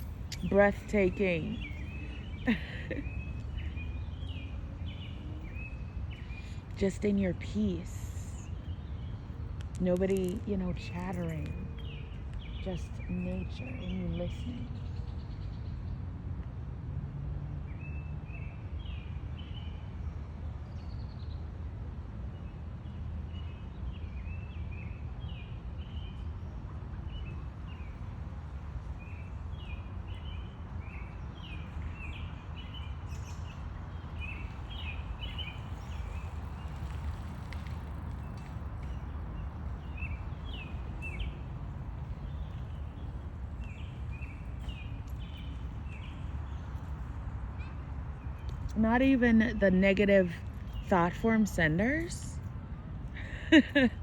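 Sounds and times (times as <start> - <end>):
birds chirping: 0.0 - 15.9, 29.0 - 52.5, 53.1 - 54.0.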